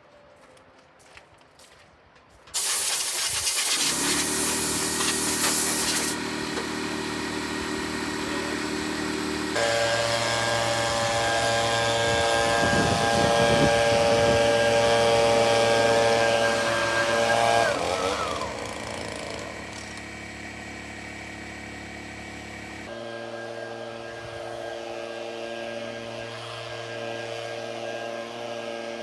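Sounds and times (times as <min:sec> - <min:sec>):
compressed air hissing: 0:02.6 - 0:06.2
machine motor humming: 0:03.8 - 0:22.9.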